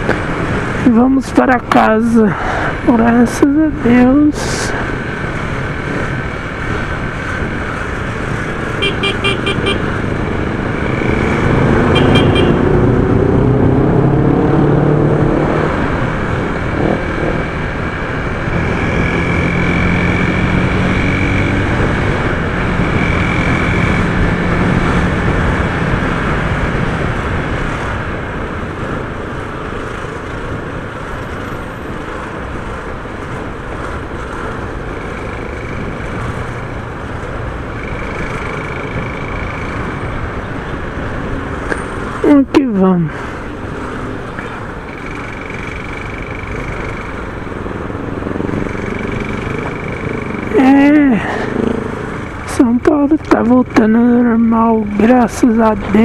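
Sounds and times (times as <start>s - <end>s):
wind on microphone: 2.7s - 42.2s
motorcycle engine accelerating: 5.2s - 29.0s, 29.8s - 42.4s, 43.4s - 56.0s
short horn beeps: 8.8s - 9.9s, 11.9s - 12.6s.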